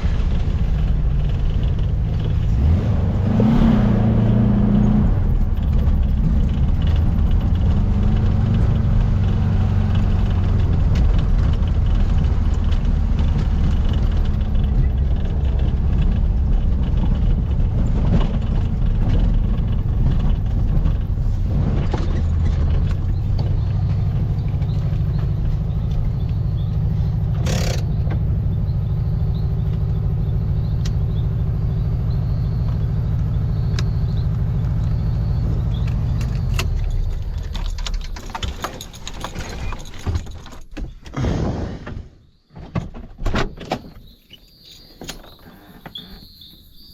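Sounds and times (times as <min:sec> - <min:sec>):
car engine running: 0:00.0 - 0:41.0
knocks and rattles: 0:05.2 - 0:28.4, 0:35.6 - 0:41.3.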